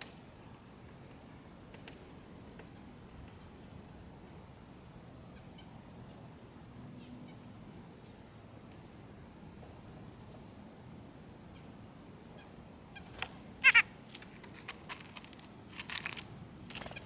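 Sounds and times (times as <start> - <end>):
wild birds calling: 11.5 - 16.1.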